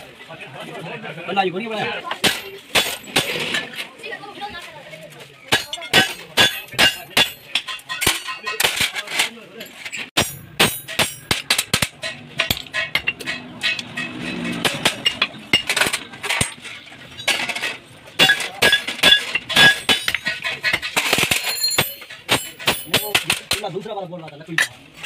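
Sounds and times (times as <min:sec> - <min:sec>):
ringing metal tones: 0:05.5 - 0:08.8, 0:09.6 - 0:23.5
metal clinking and knocking: 0:05.5 - 0:23.8.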